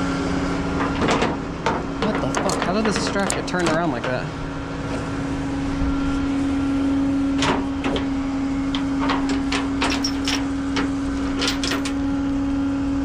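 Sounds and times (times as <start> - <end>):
steady mechanical hum: 0.0 - 13.0
strap and metal hardware clanking: 0.8 - 4.3, 8.7 - 12.0.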